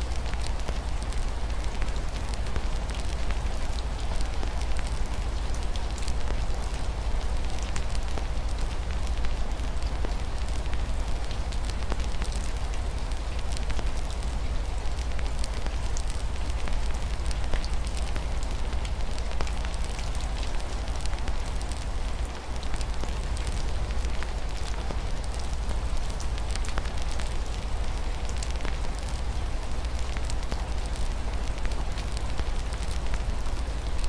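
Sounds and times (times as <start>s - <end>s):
rain hiss: 0.0s - 34.0s
wood fire crackling and popping: 7.4s - 34.0s.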